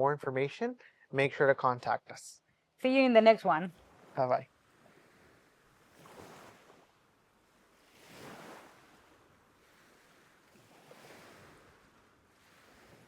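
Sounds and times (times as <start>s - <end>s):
faint ocean surf: 2.8s - 13.0s.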